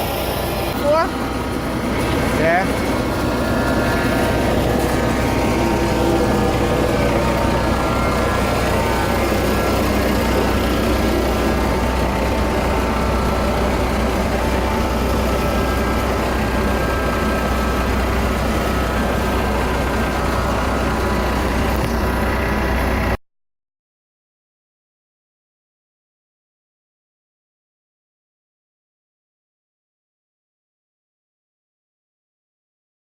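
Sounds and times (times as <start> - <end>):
engine running steadily: 0.0 - 23.2.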